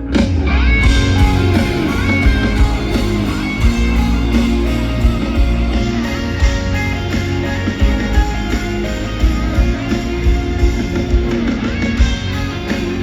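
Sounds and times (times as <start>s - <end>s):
band music with guitar: 0.0s - 13.0s.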